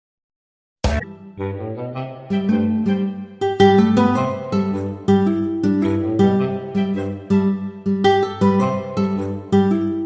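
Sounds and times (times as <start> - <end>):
acoustic guitar strummed: 2.5 - 10.0.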